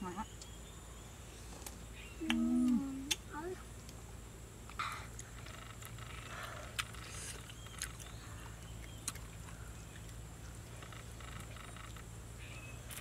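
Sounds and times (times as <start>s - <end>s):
steady low hum: 0.0s - 13.0s
child chewing: 4.7s - 12.1s.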